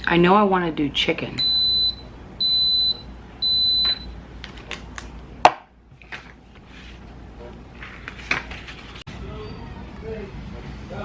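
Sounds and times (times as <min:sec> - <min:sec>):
pressure cooker high beep: 0:01.4 - 0:04.2.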